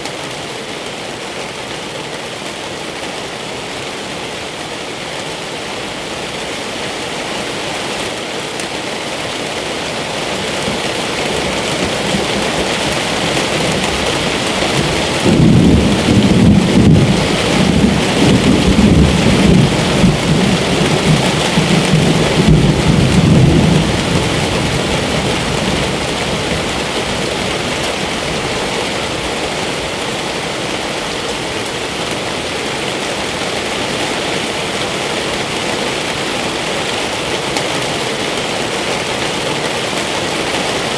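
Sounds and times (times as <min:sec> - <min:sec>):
steady rain falling: 0:00.0 - 0:40.9
thunder rumble: 0:11.7 - 0:28.7.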